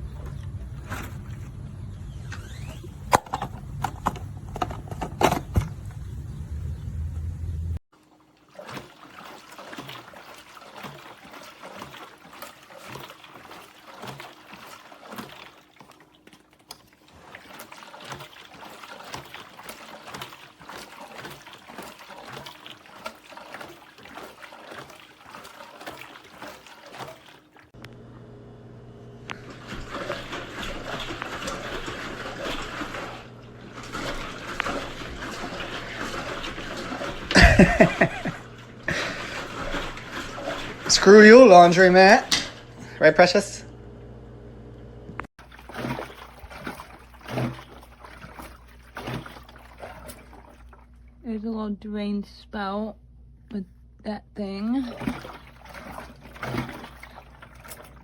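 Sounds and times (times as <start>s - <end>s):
water draining and splashing: 7.9s - 27.8s, 29.3s - 43.0s, 45.3s - 51.2s, 54.6s - 58.0s.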